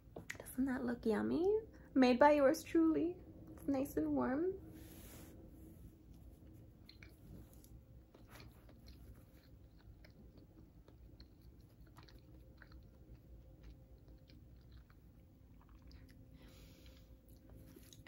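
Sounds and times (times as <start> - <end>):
person chewing: 6.2 - 18.0.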